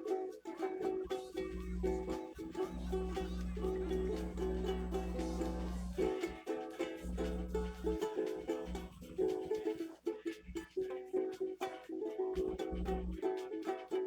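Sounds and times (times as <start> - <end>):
low hum: 0.9 - 10.9, 12.4 - 13.3
guitar strumming: 1.1 - 10.2.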